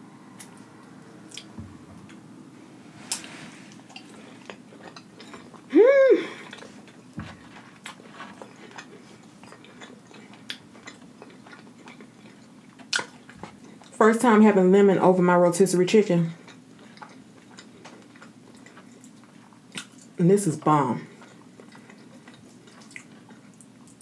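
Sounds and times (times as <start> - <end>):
chewing with wet mouth clicks: 1.3 - 1.5, 3.8 - 5.7, 6.4 - 14.0, 16.4 - 20.2, 21.1 - 24.0
person humming mmm: 5.7 - 6.7.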